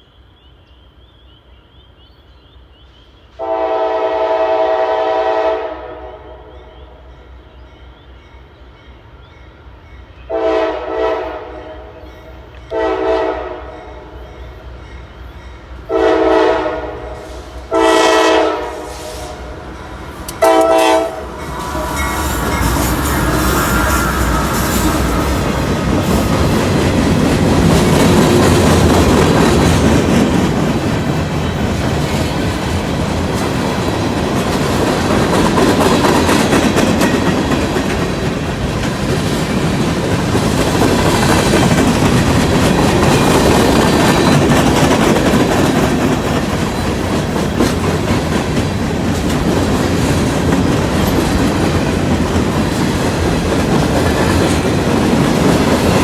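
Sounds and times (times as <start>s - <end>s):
freight train rumbling past: 2.7s - 56.0s
wheels clacking over rail joints: 19.4s - 56.0s.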